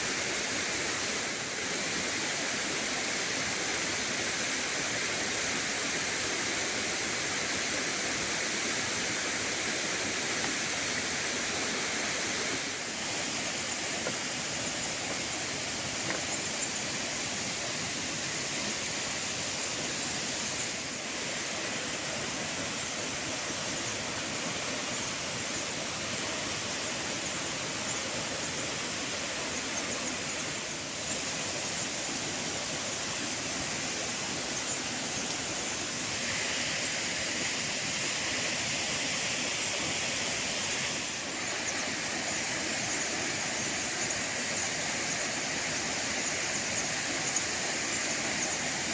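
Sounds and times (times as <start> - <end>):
running water rushing: 0.0 - 48.9.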